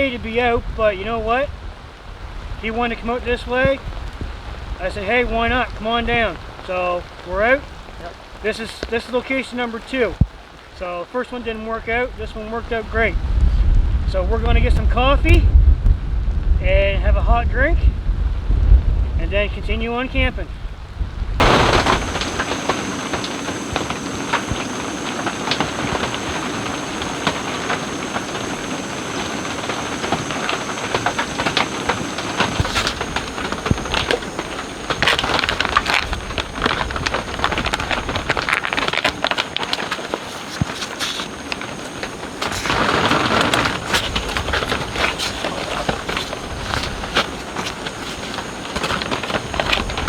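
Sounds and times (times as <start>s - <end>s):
rain and flowing water: 21.4s - 50.0s.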